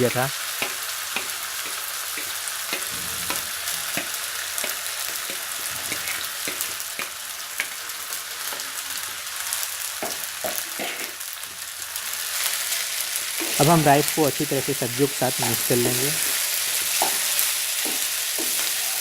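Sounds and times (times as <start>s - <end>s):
vegetables sizzling in oil: 0.0s - 19.0s
spatula scraping pan: 1.2s - 7.1s.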